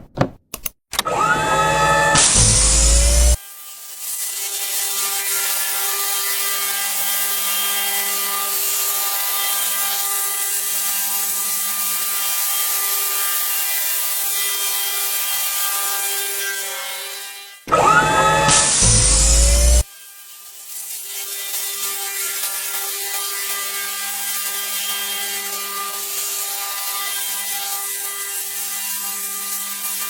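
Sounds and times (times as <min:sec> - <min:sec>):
wood cutting hiss: 0:02.1 - 0:03.4, 0:17.7 - 0:19.8.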